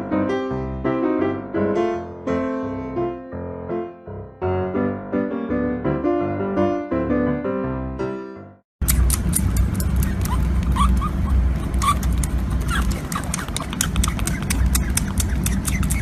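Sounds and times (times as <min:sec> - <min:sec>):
piano music: 0:00.0 - 0:08.6.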